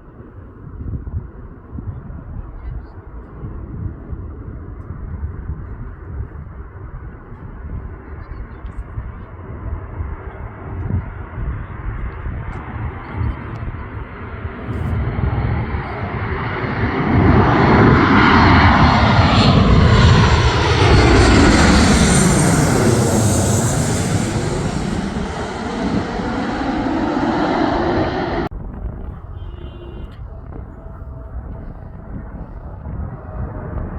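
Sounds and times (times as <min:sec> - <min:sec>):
airplane passing overhead: 0:03.1 - 0:28.5.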